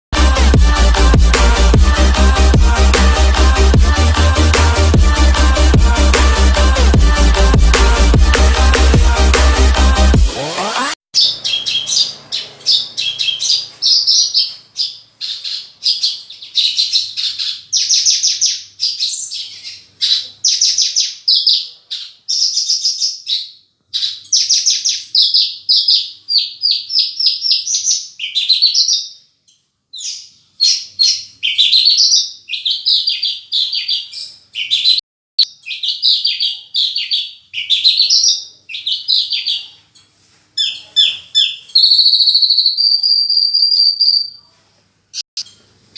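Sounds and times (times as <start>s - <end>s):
lark singing trilled phrases: 40.6s - 44.4s.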